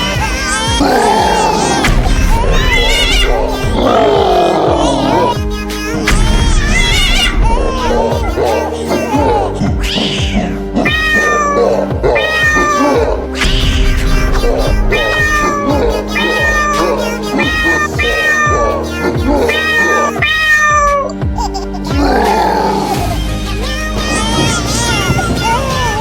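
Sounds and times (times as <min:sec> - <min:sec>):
background music: 0:00.0 - 0:26.0
cat meowing: 0:00.7 - 0:05.4, 0:06.0 - 0:21.2.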